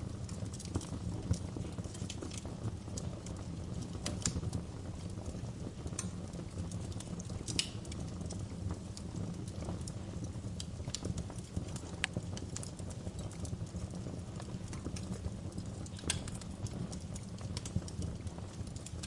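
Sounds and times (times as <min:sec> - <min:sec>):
fire crackling and popping: 0:00.0 - 0:19.0.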